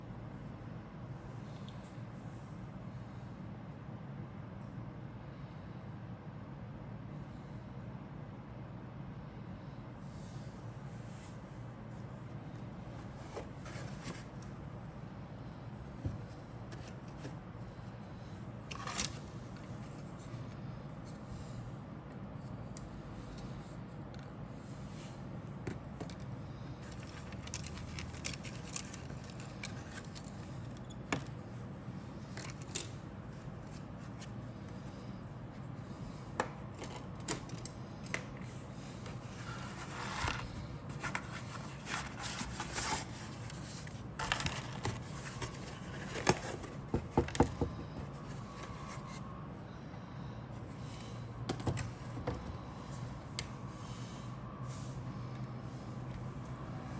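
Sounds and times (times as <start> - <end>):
steady low hum: 0.0 - 56.9
plastic parts clicking and scraping: 26.0 - 31.4, 39.0 - 49.2.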